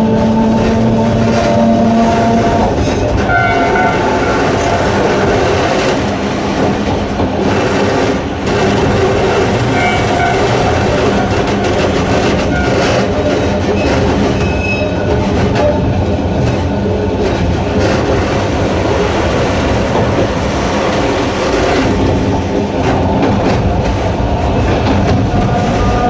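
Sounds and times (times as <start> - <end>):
electric train rumbling: 0.0 - 26.0
train wheels squealing: 12.5 - 15.7.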